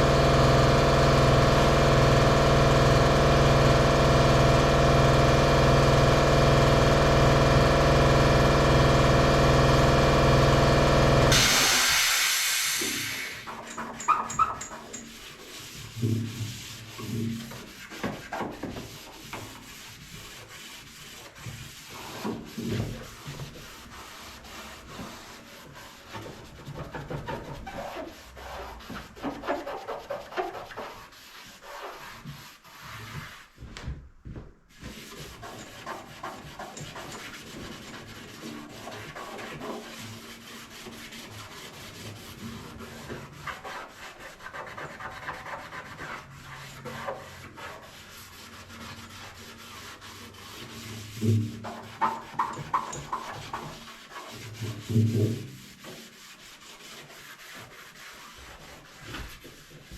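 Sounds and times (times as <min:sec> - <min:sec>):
hand sanding painted metal: 0:12.8 - 0:33.7, 0:34.7 - 0:59.9.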